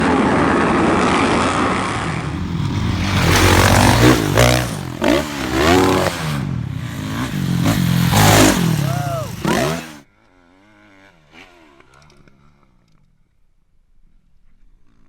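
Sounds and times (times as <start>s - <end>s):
dirt bike engine revving: 1.7s - 10.0s.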